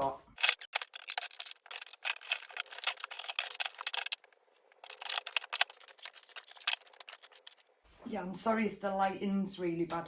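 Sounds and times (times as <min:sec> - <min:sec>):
items crackling and rustling: 0:00.3 - 0:08.0.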